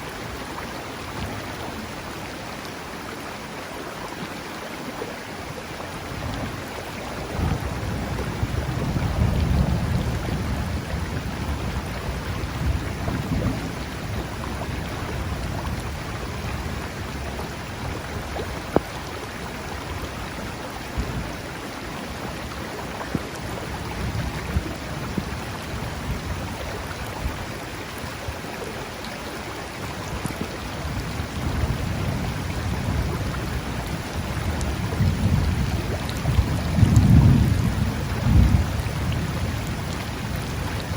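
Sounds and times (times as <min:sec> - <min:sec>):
rushing water: 0:00.0 - 0:40.9
rain hissing: 0:29.9 - 0:40.9
deep thunder rolling: 0:34.6 - 0:40.7.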